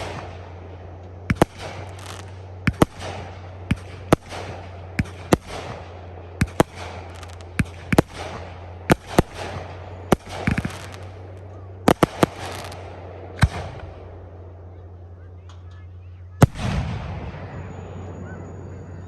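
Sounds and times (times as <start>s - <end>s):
firework crackling: 0.0s - 14.7s
firework bangs: 0.0s - 15.0s, 15.8s - 18.2s
steady low hum: 0.0s - 19.0s.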